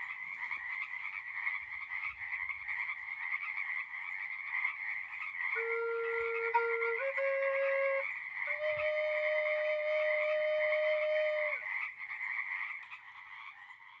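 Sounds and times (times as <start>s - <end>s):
chorus of calling animals: 0.0s - 14.0s
long held musical notes: 5.6s - 11.6s.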